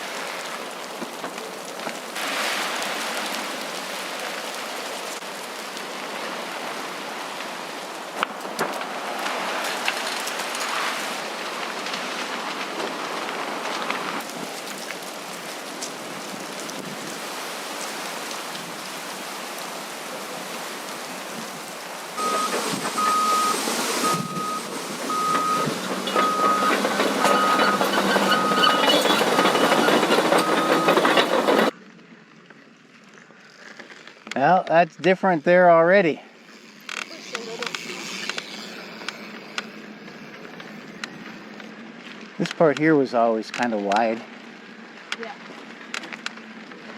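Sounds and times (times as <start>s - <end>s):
tyres rolling over dirt: 0.0s - 31.8s
short high beeps: 22.2s - 29.8s
wind on microphone: 23.7s - 25.8s.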